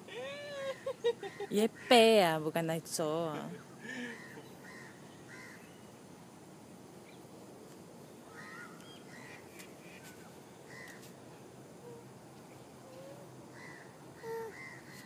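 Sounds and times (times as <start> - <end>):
distant birds calling: 3.6 - 6.0, 8.2 - 11.1, 11.8 - 15.0.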